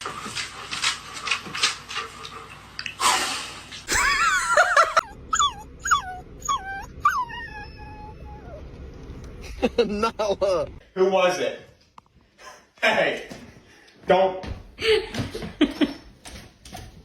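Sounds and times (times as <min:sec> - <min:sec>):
dog whining: 0:03.9 - 0:08.8.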